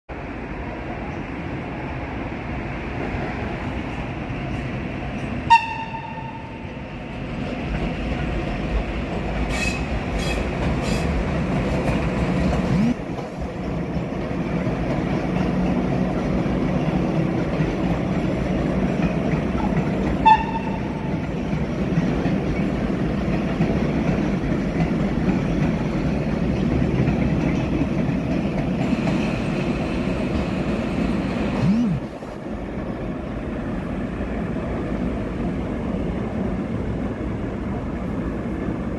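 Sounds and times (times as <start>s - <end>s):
train wheels rumbling on rails: 0.1s - 38.9s
train horn toots: 5.5s - 6.6s, 20.2s - 21.1s
clickety-clack of wheels: 7.4s - 32.0s.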